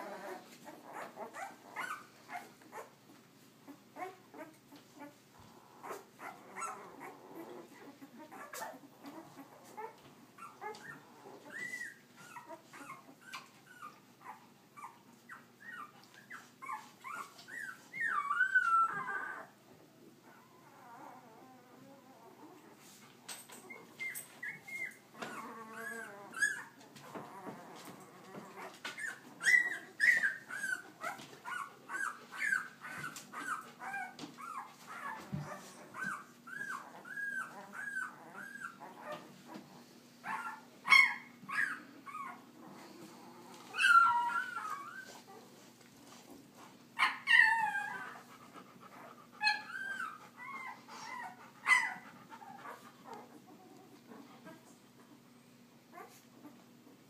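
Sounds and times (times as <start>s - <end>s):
puppies whimpering and squealing: 0.0s - 22.8s, 23.5s - 55.2s.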